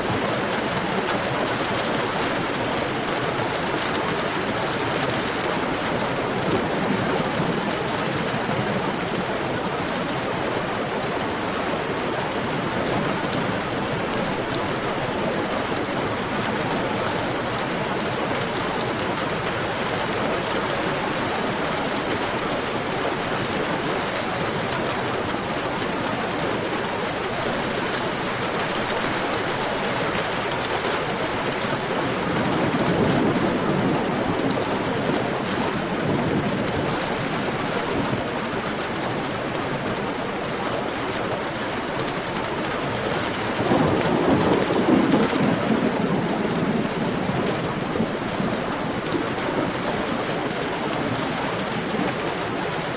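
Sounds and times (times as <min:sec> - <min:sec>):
heavy rain: 0:00.0 - 0:52.9
thunder rumbling: 0:27.0 - 0:38.6, 0:43.4 - 0:52.9.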